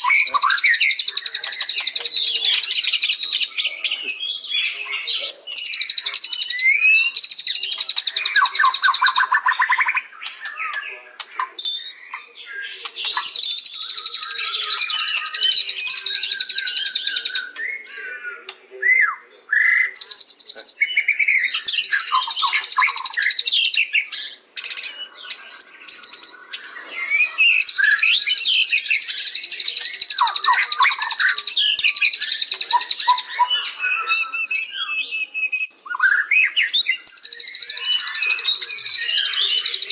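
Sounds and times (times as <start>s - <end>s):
bird singing buzzy trills: 0.0s - 39.9s
bird whistling: 18.8s - 39.9s.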